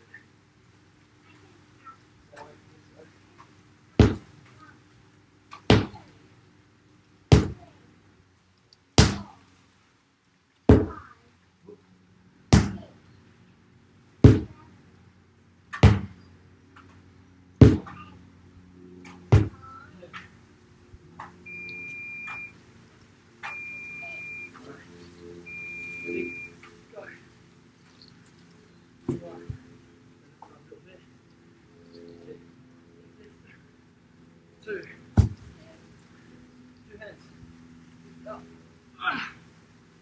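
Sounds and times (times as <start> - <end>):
sledgehammer striking a tyre: 4.0 - 4.3, 5.7 - 6.0, 7.3 - 7.6, 9.0 - 9.3, 10.7 - 11.0, 12.5 - 12.8, 14.3 - 14.5, 15.8 - 16.2, 17.6 - 18.0, 19.3 - 19.6, 35.2 - 35.5
high electronic beep: 21.5 - 22.6, 23.4 - 24.6, 25.5 - 26.5.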